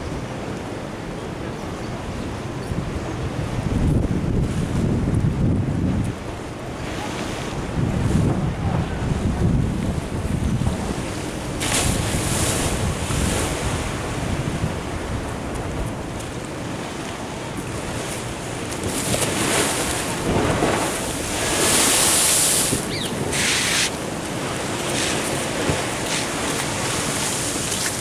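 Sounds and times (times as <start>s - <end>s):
wind buffeting microphone: 1.4s - 28.0s
ocean waves washing against wall: 3.5s - 28.0s.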